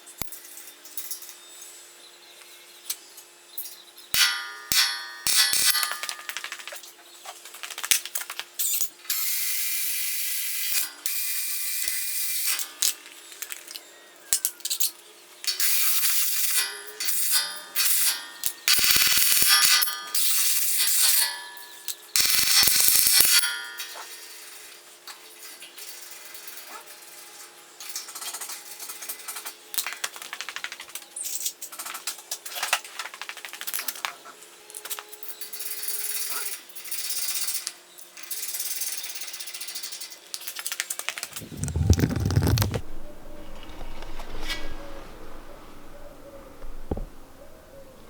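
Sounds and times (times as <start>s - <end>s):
low rumble: 41.4s - 48.0s.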